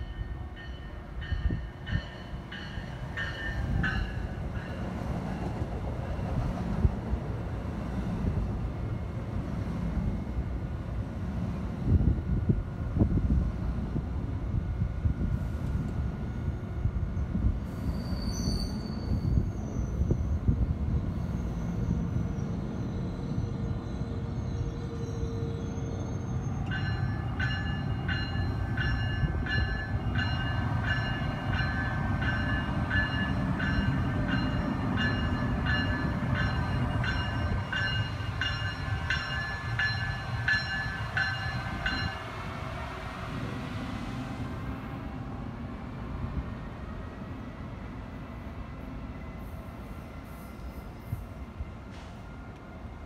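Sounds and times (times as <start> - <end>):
locomotive bell ringing: 0.0 - 4.9, 26.6 - 42.3
train wheels rumbling on rail: 0.0 - 53.0
high wheel squeal: 17.7 - 20.3.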